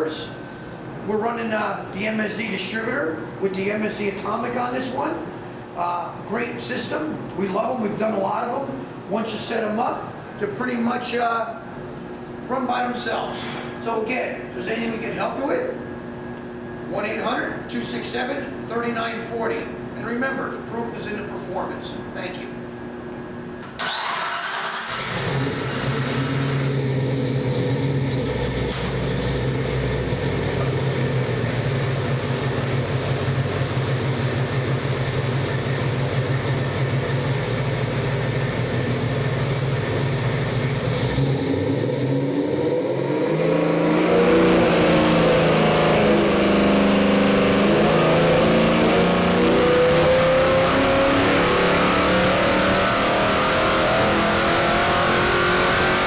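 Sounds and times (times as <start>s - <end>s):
engine running and revving: 24.8s - 56.0s.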